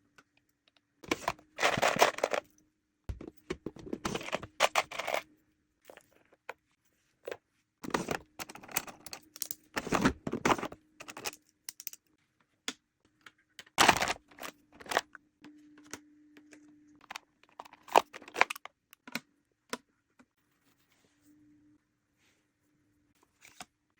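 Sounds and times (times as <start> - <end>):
items clicking and tapping: 0.1 - 2.5, 3.1 - 5.2, 5.9 - 12.1, 12.7 - 20.3.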